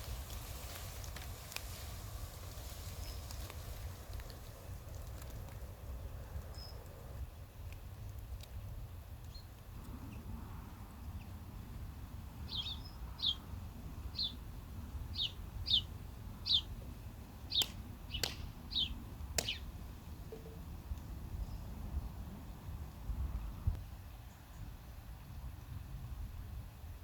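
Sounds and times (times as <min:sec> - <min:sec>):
bird chirping: 0:12.5 - 0:13.4, 0:14.1 - 0:14.4, 0:15.1 - 0:16.7, 0:17.5 - 0:19.7
sharp clicks: 0:17.5 - 0:19.7.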